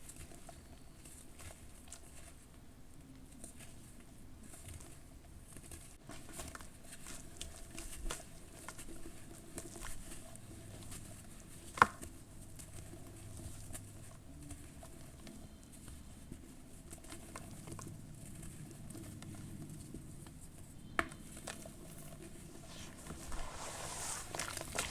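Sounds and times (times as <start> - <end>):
charcoal ash crunching in water: 22.5 - 24.9.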